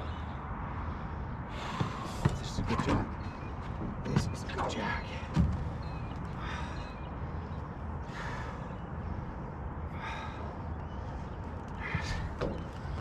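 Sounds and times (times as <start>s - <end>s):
steady low rumble: 0.0s - 13.0s
person breathing heavily: 0.3s - 2.4s, 6.3s - 13.0s.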